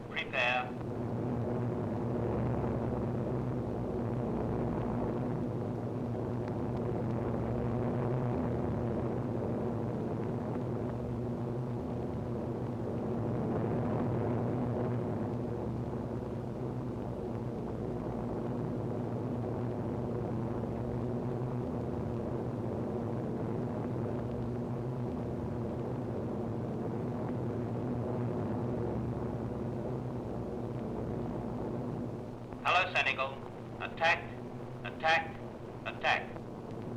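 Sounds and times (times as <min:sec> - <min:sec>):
aircraft engines humming: 0:00.0 - 0:01.4, 0:30.1 - 0:36.9.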